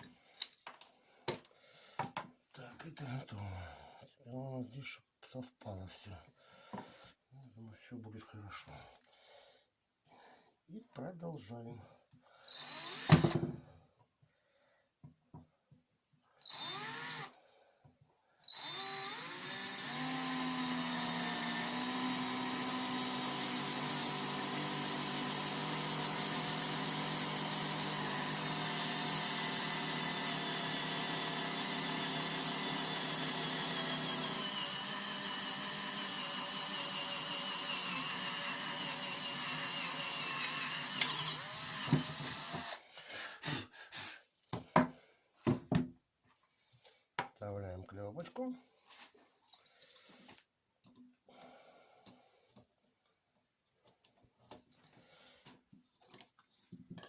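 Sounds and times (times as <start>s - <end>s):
electric drill drilling metal: 12.5s - 13.5s, 16.4s - 17.4s, 18.4s - 42.8s.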